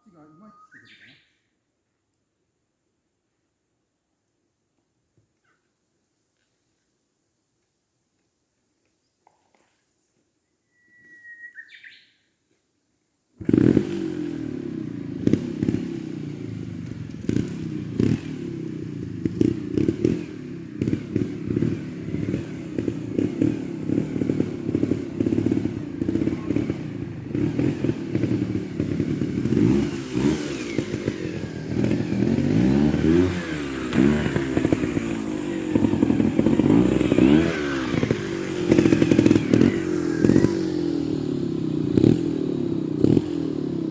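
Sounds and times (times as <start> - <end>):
motorcycle engine revving: 13.4 - 43.9.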